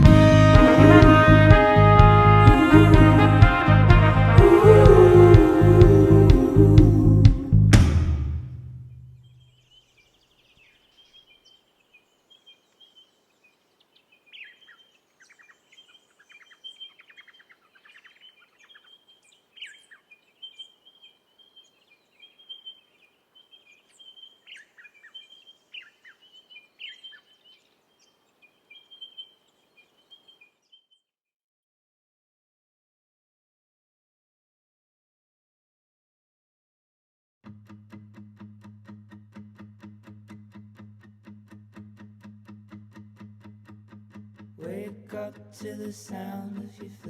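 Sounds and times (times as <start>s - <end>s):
birds chirping: 8.9s - 31.1s
light outdoor hiss: 9.2s - 31.0s.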